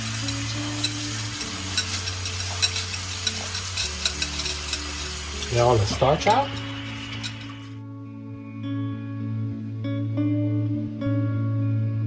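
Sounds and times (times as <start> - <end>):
rice being washed in water: 0.0 - 7.8.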